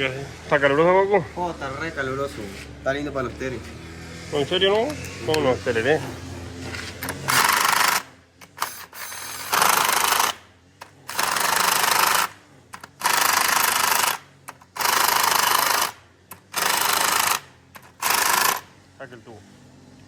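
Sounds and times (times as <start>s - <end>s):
power tool running in bursts: 1.5s - 18.9s.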